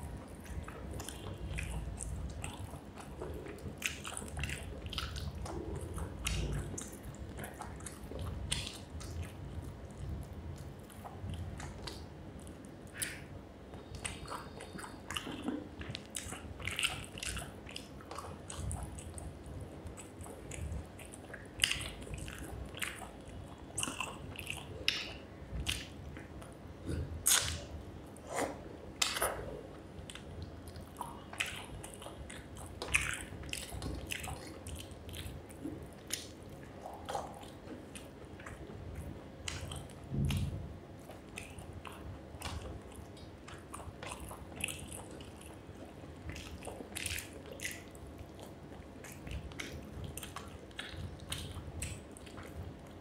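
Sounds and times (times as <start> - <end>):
wet chewing: 0.0 - 53.0
lip smacks: 10.5 - 19.3, 23.8 - 45.6
sharp mouth clicks: 12.9 - 17.0, 26.8 - 29.5.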